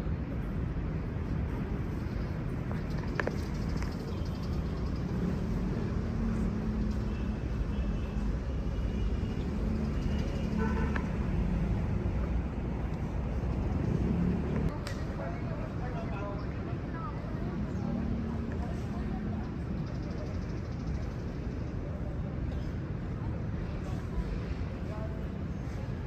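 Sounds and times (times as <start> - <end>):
engine hum: 0.0 - 15.1
passing vehicles rumble: 0.0 - 26.0.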